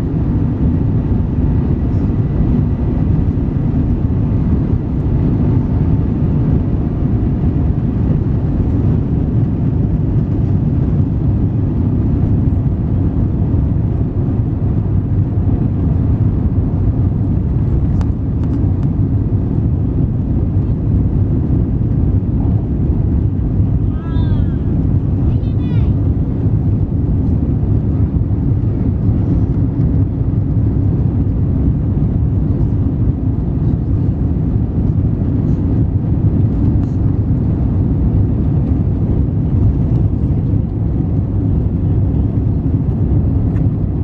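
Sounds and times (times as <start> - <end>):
jet engines roaring in cabin: 0.0 - 44.0.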